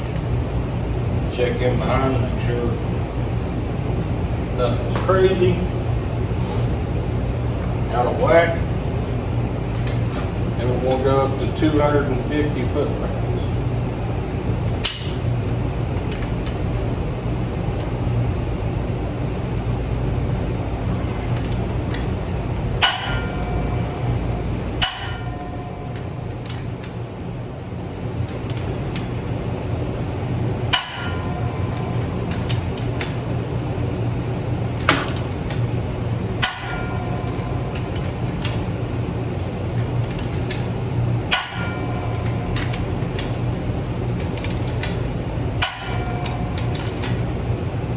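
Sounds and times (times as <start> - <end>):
steady low hum: 0.0 - 47.9
torque wrench click with ring: 22.8 - 27.0, 30.8 - 33.2, 36.4 - 38.7, 41.3 - 43.4, 45.6 - 47.4.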